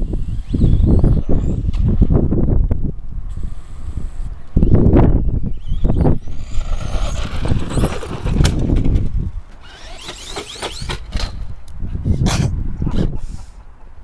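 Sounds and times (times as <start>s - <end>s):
electric motor whining: 0.0s - 1.9s, 3.3s - 11.4s
wind rumble on microphone: 0.0s - 10.0s, 10.7s - 13.6s.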